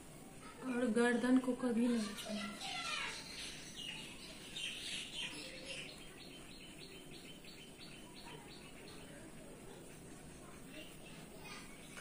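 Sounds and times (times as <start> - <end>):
bird chirping: 1.8 - 10.0.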